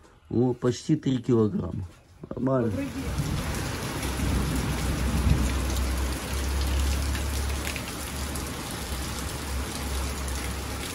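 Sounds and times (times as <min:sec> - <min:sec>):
heavy rain pouring: 0:02.6 - 0:10.9.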